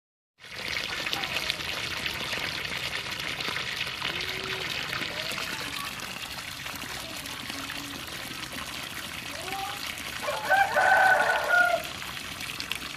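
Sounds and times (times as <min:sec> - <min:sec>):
water pouring from pump outlet: 0:00.4 - 0:12.9.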